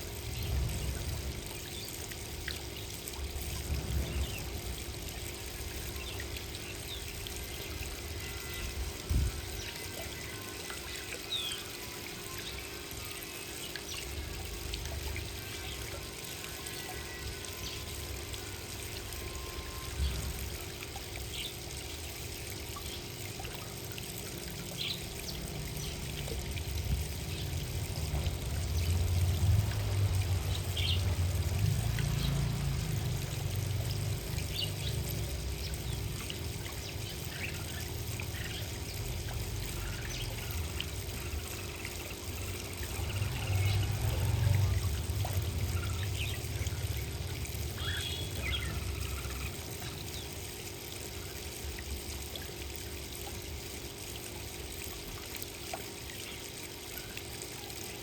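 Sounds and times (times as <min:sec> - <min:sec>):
low watery rumbling: 0:00.0 - 0:58.0
small birds chirping: 0:47.7 - 0:50.4.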